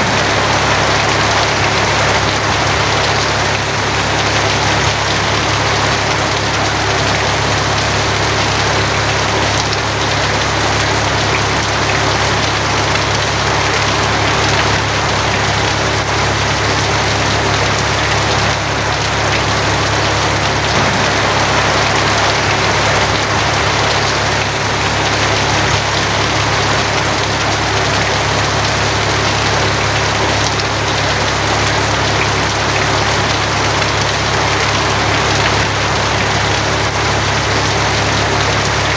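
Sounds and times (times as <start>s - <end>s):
heavy rain on a tin roof: 0.0s - 38.9s
low rumble: 18.8s - 25.5s.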